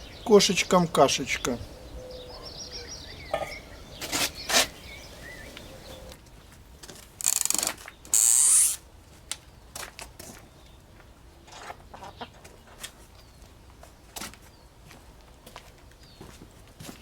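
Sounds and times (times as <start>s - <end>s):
faint bird chirps: 0.0s - 6.2s.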